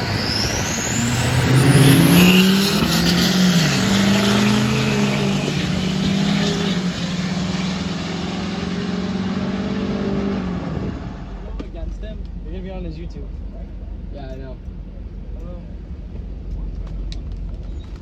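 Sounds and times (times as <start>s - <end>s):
diesel truck engine revving hard: 0.0s - 11.4s.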